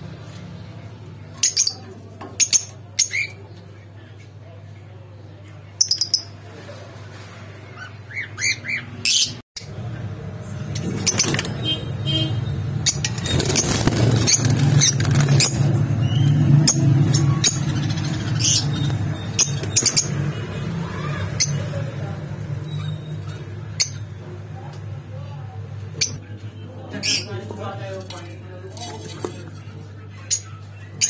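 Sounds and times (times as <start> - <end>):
pet birds chirping: 7.7 - 9.4, 10.8 - 21.8.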